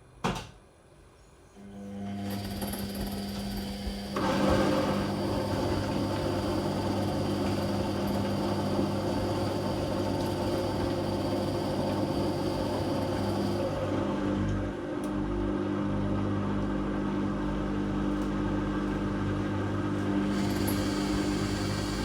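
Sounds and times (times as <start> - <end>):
washing machine hum: 1.6 - 22.0
washing machine rushing sound: 2.0 - 22.0.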